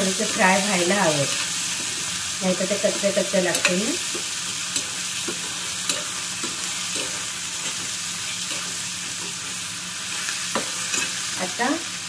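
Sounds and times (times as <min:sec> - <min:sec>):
vegetables sizzling in oil: 0:00.0 - 0:12.0
steel spoon scraping and tapping pan: 0:03.0 - 0:09.4.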